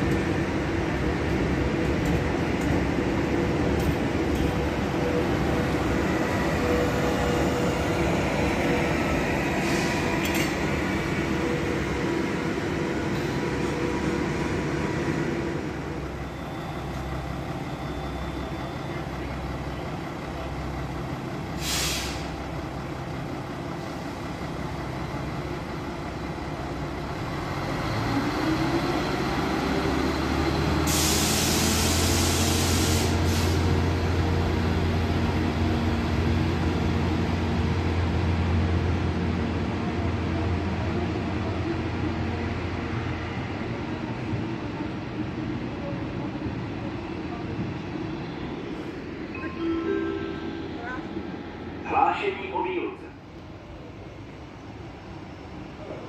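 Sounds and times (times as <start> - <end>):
electric train passing: 0.0 - 21.6, 22.2 - 56.0
diesel railcar engine: 0.0 - 56.0
hiss of air brakes: 9.5 - 10.5, 21.5 - 22.4, 30.7 - 33.8.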